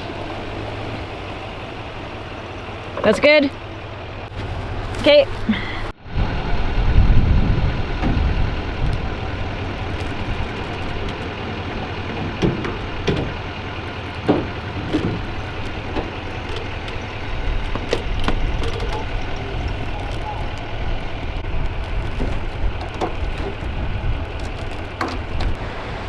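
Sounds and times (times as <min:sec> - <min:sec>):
diesel truck engine idling: 0:00.0 - 0:26.0
short clunks and knocks: 0:08.9 - 0:25.6.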